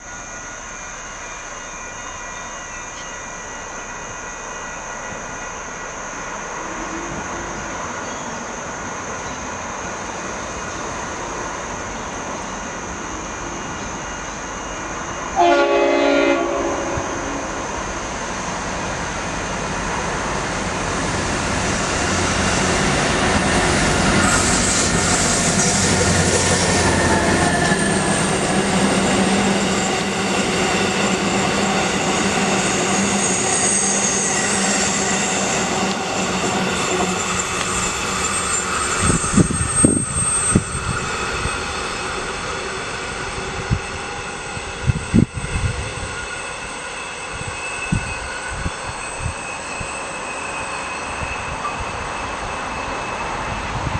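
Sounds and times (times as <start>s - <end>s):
train rumble and rail noise: 0.0s - 53.9s
train horn blast: 15.4s - 17.7s.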